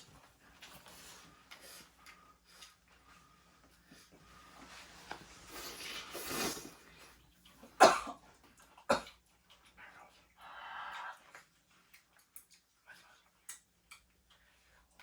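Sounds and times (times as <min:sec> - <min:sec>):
person coughing: 0:07.8 - 0:08.2.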